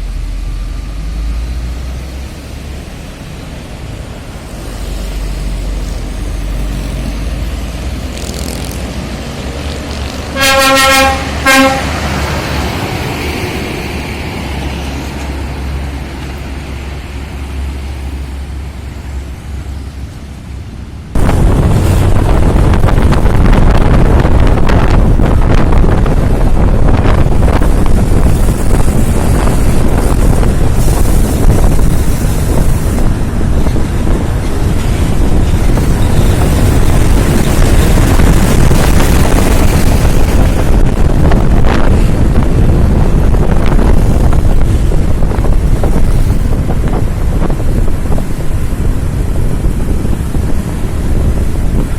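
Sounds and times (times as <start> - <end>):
truck horn blasts: 10.3 - 12.0
loud dense rushing noise: 20.4 - 51.9.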